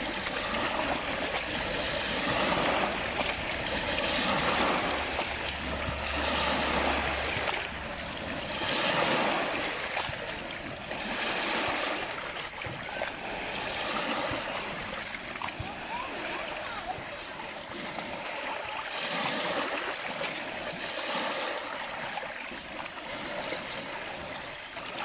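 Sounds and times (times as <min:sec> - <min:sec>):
lake waves washing against shore: 0:00.0 - 0:25.0.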